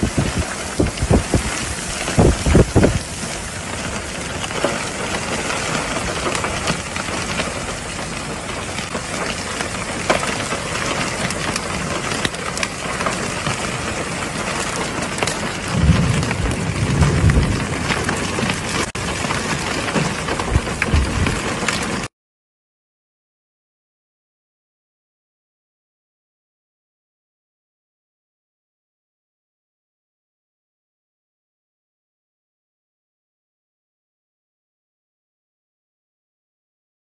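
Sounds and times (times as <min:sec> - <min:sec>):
heavy rain pouring: 0:00.0 - 0:22.1
low rumbles: 0:00.0 - 0:22.1.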